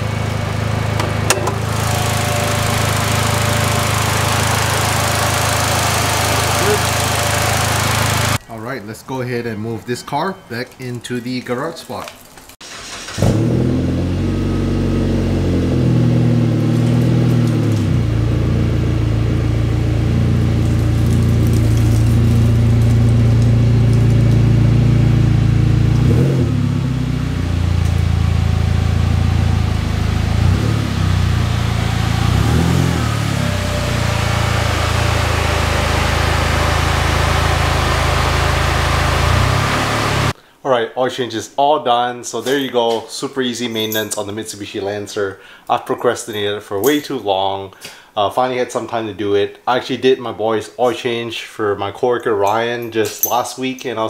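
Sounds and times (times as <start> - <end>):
car engine running: 0.0 - 8.4, 13.1 - 40.4.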